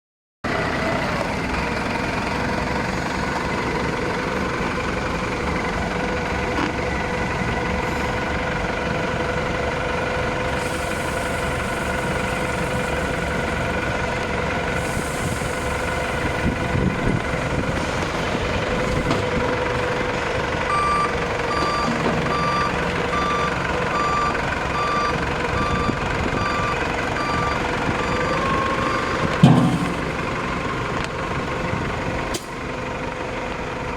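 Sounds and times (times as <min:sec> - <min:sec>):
diesel engine running: 0:00.4 - 0:33.9
reversing alarm beeping: 0:20.6 - 0:30.1.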